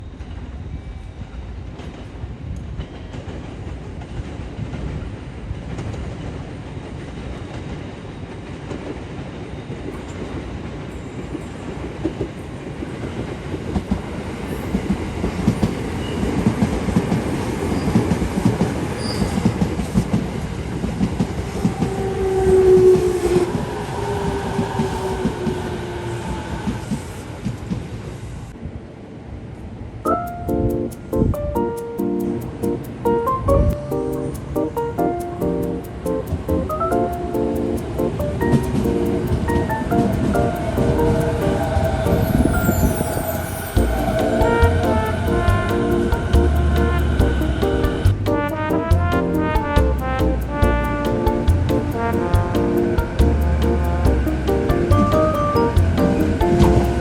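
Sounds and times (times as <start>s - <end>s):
tone falling in pitch: 54.9s - 57.0s.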